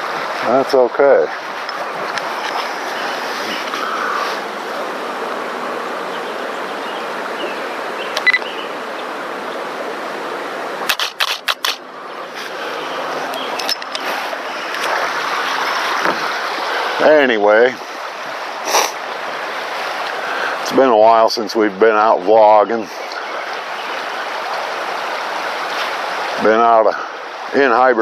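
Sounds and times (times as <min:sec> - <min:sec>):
creek water running: 0:00.0 - 0:28.0
sharp clicks: 0:10.9 - 0:11.8.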